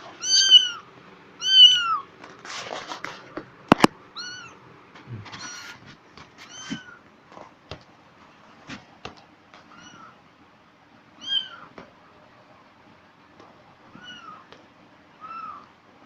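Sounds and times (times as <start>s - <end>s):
cat meowing: 0.2s - 0.8s, 1.4s - 2.1s, 4.1s - 4.6s, 5.2s - 5.8s, 9.7s - 10.2s, 11.2s - 11.7s, 13.9s - 14.5s, 15.2s - 15.7s.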